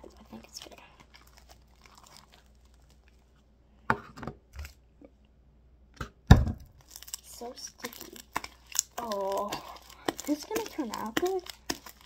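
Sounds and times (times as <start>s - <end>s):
slime crackling: 0.0s - 3.4s, 6.7s - 12.0s.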